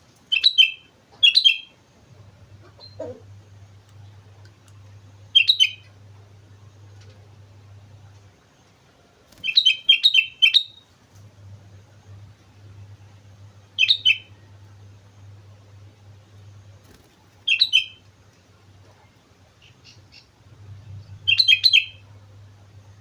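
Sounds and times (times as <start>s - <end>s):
faint low hum: 0.0s - 23.0s
bird singing chirping notes: 0.3s - 1.8s, 5.3s - 6.0s, 9.4s - 10.8s, 13.6s - 14.6s, 17.5s - 18.0s, 19.6s - 22.1s.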